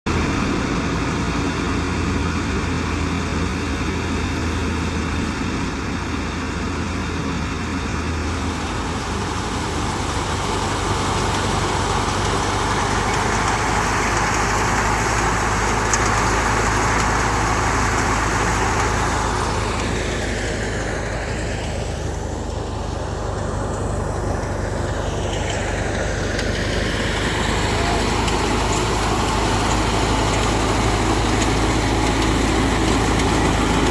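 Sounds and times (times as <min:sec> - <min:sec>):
tractor diesel engine drone: 0:00.1 - 0:33.9
thresher machinery rushing: 0:08.3 - 0:33.9.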